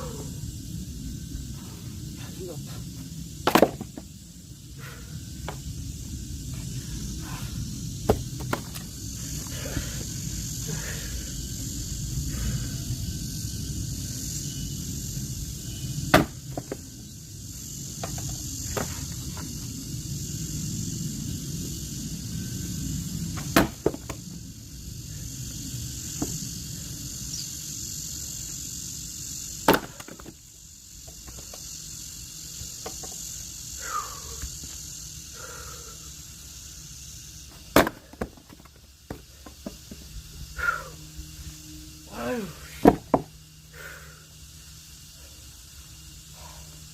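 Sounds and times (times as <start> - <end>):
insects chirring: 0.0 - 46.9
axe splitting firewood logs: 3.4 - 4.0, 16.1 - 16.8, 23.4 - 24.1, 29.6 - 30.3, 37.7 - 39.2, 42.8 - 43.3.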